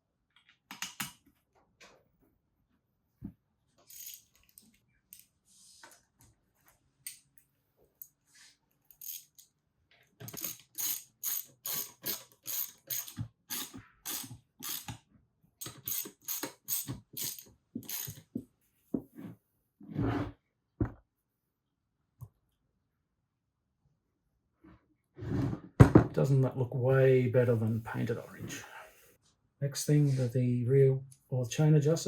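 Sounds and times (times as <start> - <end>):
socket ratchet clicking: 10.2 - 15.0, 15.6 - 18.3.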